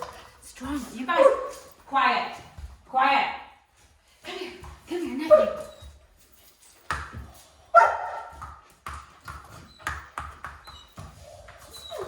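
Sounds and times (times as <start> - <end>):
dog barking: 7.7 - 8.4.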